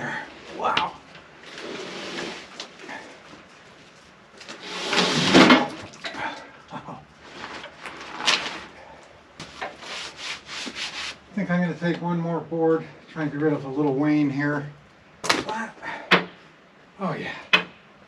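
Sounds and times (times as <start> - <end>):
wood slab scraping: 1.4 - 2.7, 4.5 - 5.8.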